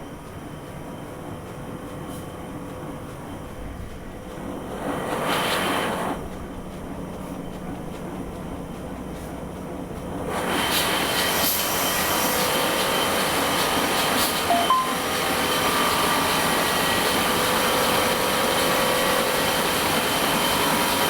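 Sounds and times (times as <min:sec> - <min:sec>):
printing press humming: 0:06.2 - 0:21.0.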